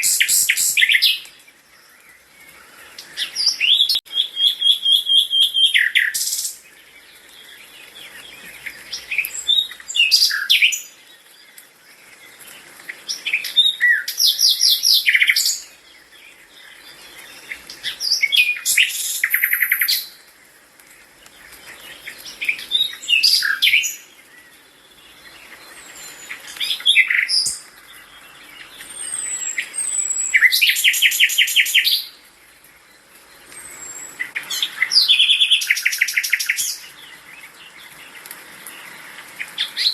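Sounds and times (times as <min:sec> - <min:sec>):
songbird whistling and trilling: 0:00.0 - 0:01.3, 0:03.0 - 0:06.6, 0:08.1 - 0:10.9, 0:13.1 - 0:15.8, 0:16.8 - 0:20.2, 0:22.0 - 0:24.5, 0:25.7 - 0:32.2, 0:33.6 - 0:36.9.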